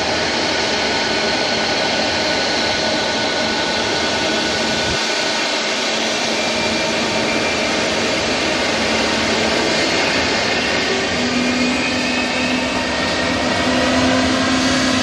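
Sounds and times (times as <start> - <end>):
jet engine rush and whine: 0.0 - 15.0.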